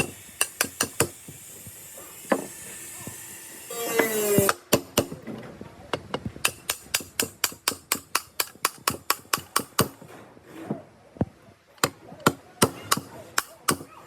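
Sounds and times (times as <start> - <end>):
hammer tapping on metal: 0.0 - 1.3, 4.4 - 5.2, 6.0 - 10.0, 11.8 - 14.0.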